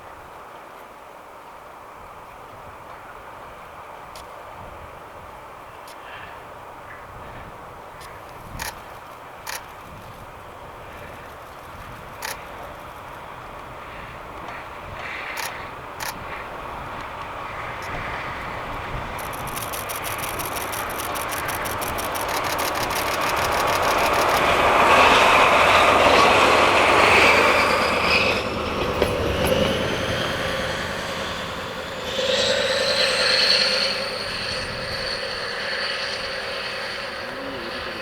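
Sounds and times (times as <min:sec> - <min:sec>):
diesel locomotive passing by: 0:04.8 - 0:38.0
high-pitched squeal: 0:19.1 - 0:38.0.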